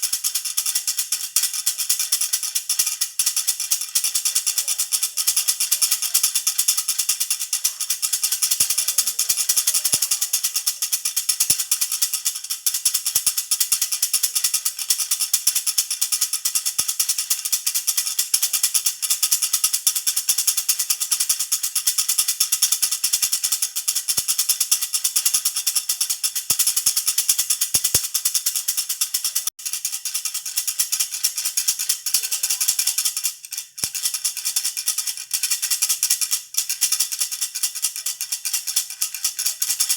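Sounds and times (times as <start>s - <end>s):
baby rattle shaken: 0.0s - 39.9s.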